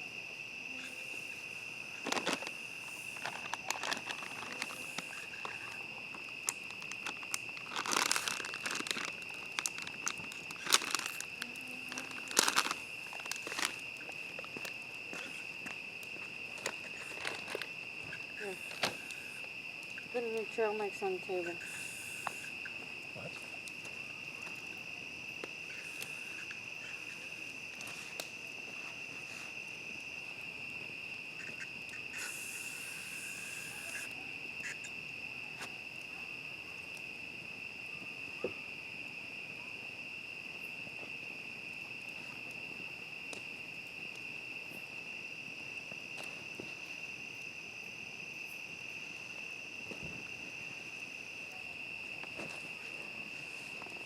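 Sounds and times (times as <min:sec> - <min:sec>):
crickets trilling: 0:00.0 - 0:54.0
rustle: 0:00.7 - 0:36.2
faint clicks and crackles: 0:02.0 - 0:19.2.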